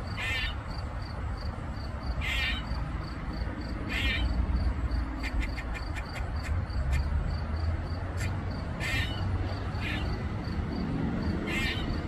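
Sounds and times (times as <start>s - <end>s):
squirrel rasping calls: 0.1s - 0.6s, 2.1s - 2.8s, 3.8s - 4.4s, 5.2s - 7.1s, 8.1s - 10.2s, 11.4s - 12.0s.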